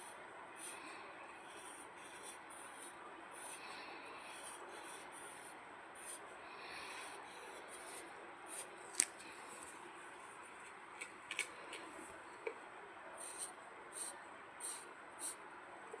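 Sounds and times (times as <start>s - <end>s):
pencil scratching on paper: 0.0s - 6.2s, 6.8s - 8.7s, 13.2s - 15.4s.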